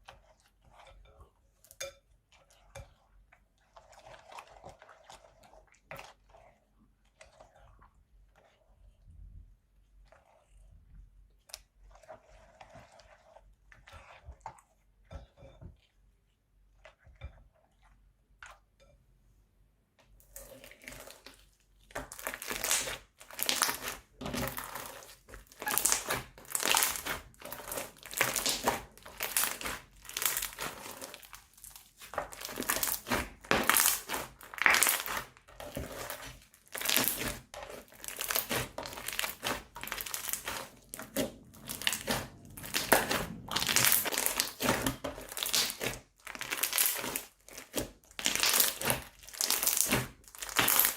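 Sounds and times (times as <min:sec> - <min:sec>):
slime being squeezed: 0:38.0 - 0:50.9.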